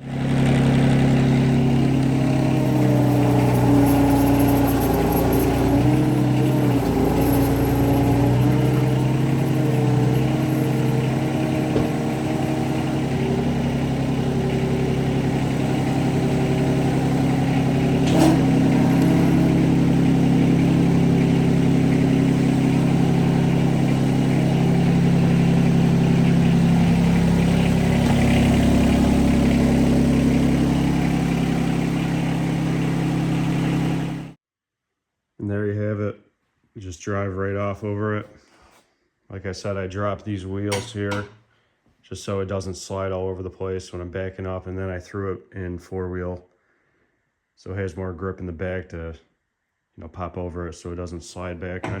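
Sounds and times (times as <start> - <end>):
tractor diesel engine running: 0.0 - 34.4.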